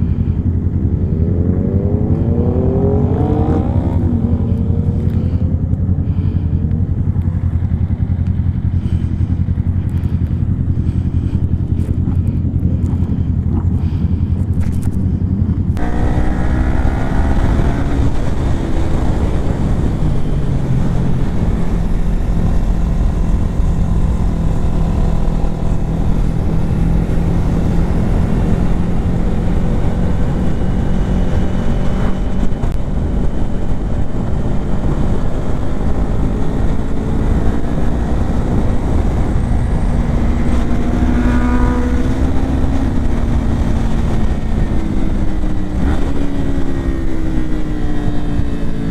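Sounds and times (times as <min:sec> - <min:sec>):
wind rushing: 0:00.0 - 0:05.7, 0:15.7 - 0:47.3
motorcycle engine under way: 0:00.0 - 0:48.9.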